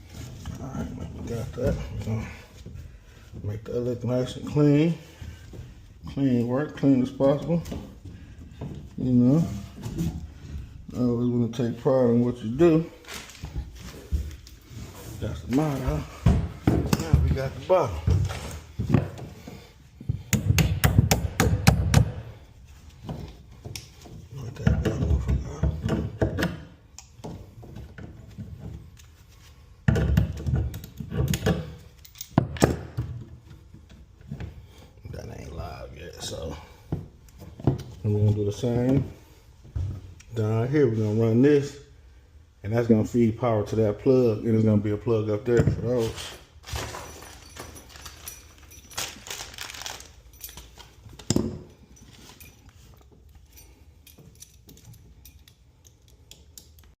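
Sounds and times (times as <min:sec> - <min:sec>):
tools knocking and bumping: 0:15.5 - 0:22.4, 0:23.0 - 0:28.9, 0:29.8 - 0:34.7, 0:45.4 - 0:46.1, 0:50.6 - 0:52.4
clicks and rustles: 0:46.0 - 0:57.0
small metal rattles: 0:46.7 - 0:56.9.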